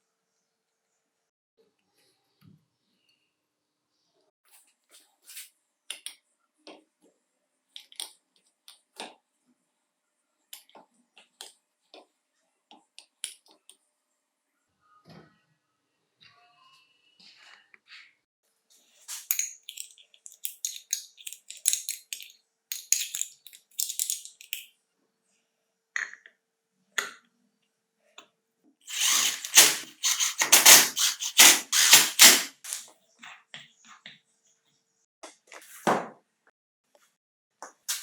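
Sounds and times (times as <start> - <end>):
hand tools clicking and knocking: 28.9 - 32.8.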